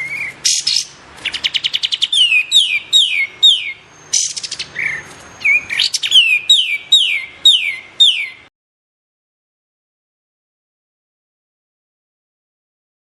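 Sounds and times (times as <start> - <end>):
bird whistling downward notes: 0.0 - 8.4.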